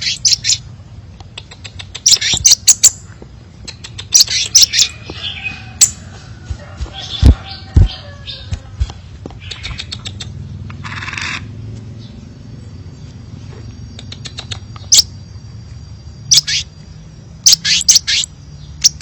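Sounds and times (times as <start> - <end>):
bird high chirp: 0.0 - 0.8, 1.4 - 6.0, 7.0 - 11.4, 12.0 - 15.2, 16.2 - 19.0
steady low hum: 0.0 - 19.0
scattered clicks: 1.1 - 2.4, 3.1 - 4.5, 8.5 - 11.0, 14.0 - 15.0
loud low thumps: 7.0 - 8.0.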